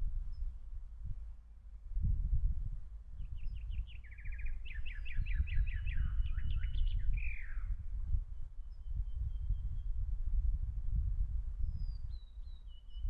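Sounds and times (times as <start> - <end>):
wind rumble on microphone: 0.0 - 13.0
songbird singing: 0.2 - 0.6, 3.1 - 10.1, 11.7 - 13.0.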